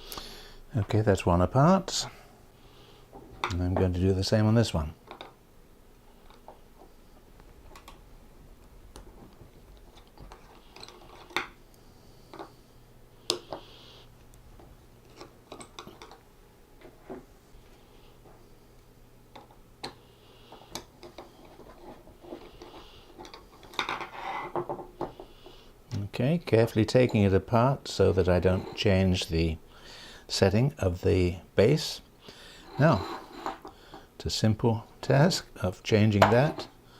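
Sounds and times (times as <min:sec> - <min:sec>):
metallic scrapes: 0:32.6 - 0:33.6.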